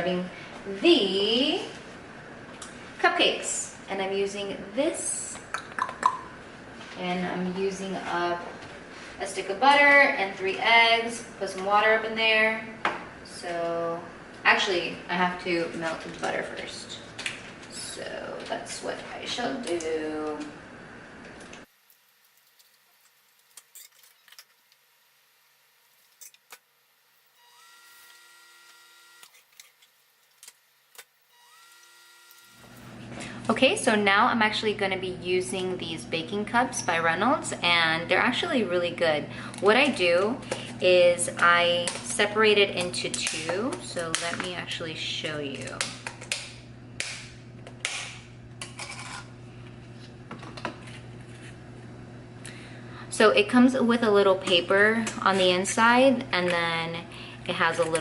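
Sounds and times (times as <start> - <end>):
electric appliance hum: 0.0 - 58.0
baking cups crinkling and rustling: 21.2 - 25.0, 39.4 - 46.7, 48.5 - 51.8, 57.5 - 58.0.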